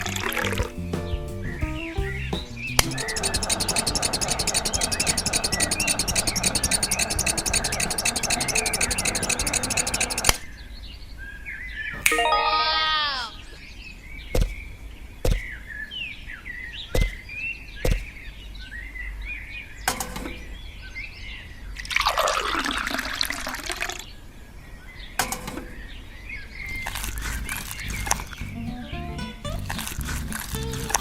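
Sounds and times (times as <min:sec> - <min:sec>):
small birds chirping: 0:00.0 - 0:12.0, 0:13.3 - 0:21.8, 0:24.1 - 0:31.0.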